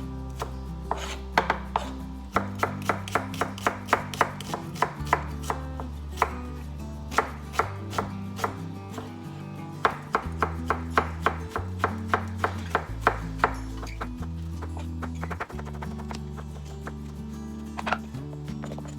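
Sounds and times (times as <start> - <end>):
knife chopping on cutting board: 0.4 - 5.6, 7.1 - 9.1, 9.8 - 13.6.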